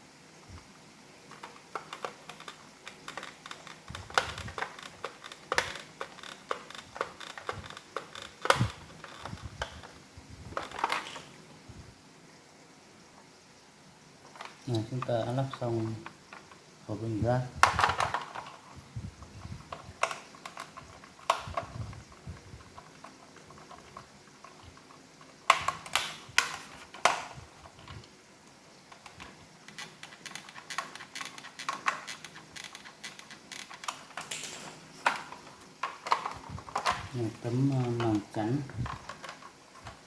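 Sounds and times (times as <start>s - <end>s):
plastic parts clicking: 1.3s - 11.4s, 17.6s - 18.6s, 19.7s - 28.1s, 28.9s - 40.0s.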